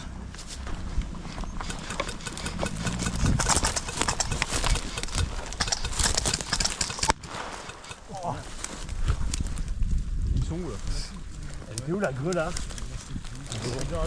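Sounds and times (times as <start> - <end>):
footsteps crunching: 0.0 - 9.8
gear and clothing rustling: 0.0 - 14.0.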